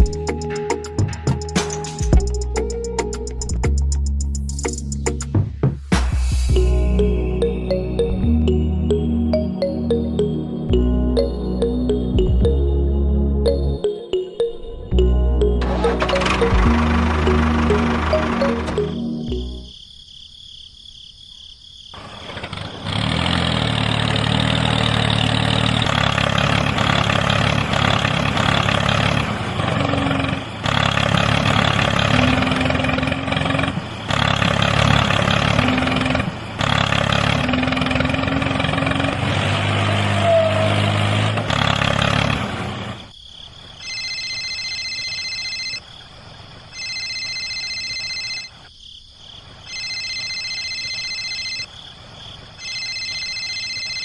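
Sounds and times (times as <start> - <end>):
electronic beeping tone: 13.5 - 19.7.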